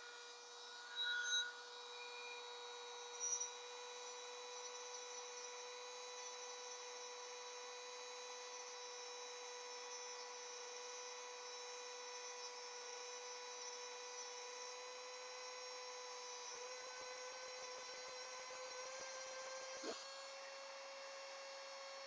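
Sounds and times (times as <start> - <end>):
rotary tool whining: 0.0 - 22.0.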